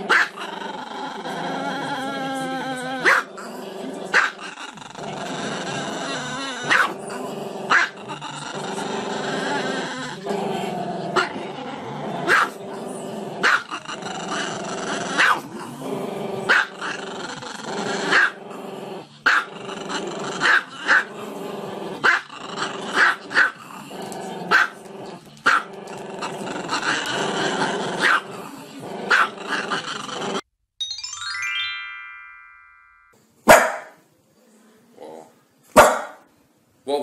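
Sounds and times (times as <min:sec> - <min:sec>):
dog yapping: 0:06.7 - 0:06.9, 0:35.8 - 0:36.2.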